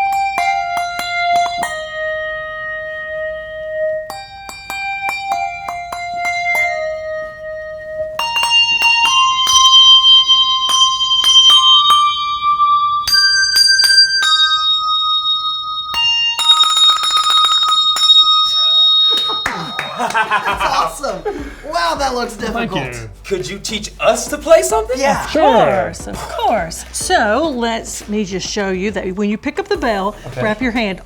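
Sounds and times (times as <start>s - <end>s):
handbells ringing a tune: 0.0s - 21.5s.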